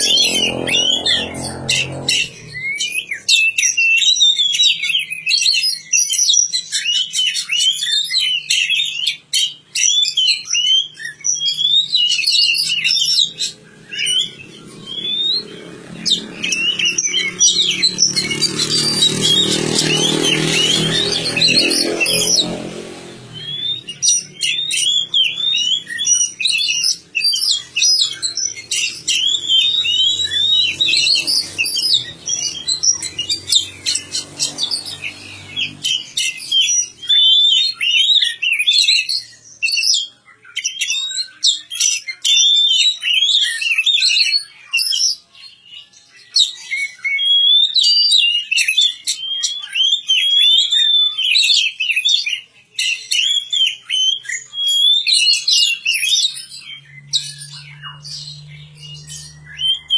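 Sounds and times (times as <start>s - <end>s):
bird singing chirps and whistles: 0.0s - 59.9s.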